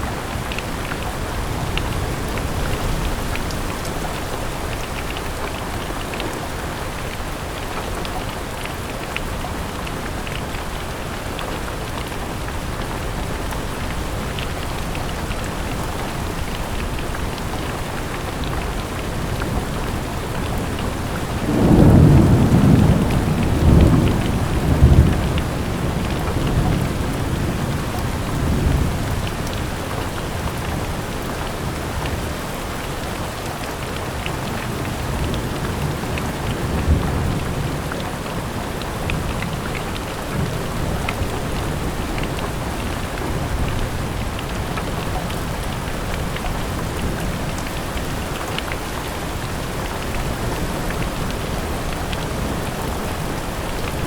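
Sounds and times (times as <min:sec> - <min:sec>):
rain on a window: 0:00.0 - 0:54.0
thunder rumbling: 0:19.1 - 0:29.2.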